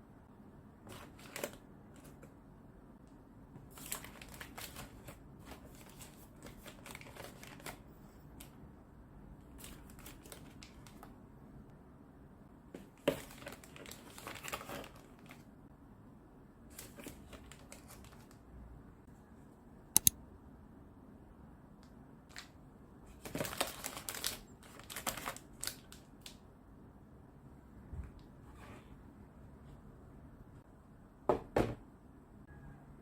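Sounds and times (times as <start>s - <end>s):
crinkling and rustling: 0.8s - 2.4s, 3.5s - 8.6s, 12.7s - 15.5s, 23.1s - 26.4s
sharp double click: 20.0s - 20.2s.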